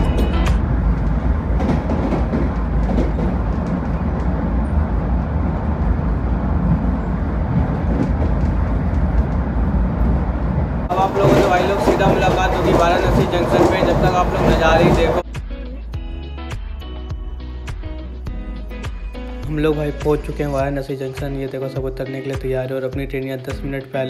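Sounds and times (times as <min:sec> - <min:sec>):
train wheels rumbling on rail: 0:00.0 - 0:15.2.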